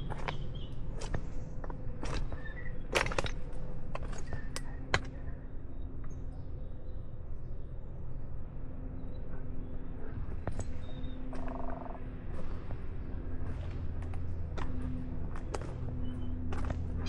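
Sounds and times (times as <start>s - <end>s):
low outdoor background: 0.0s - 17.0s.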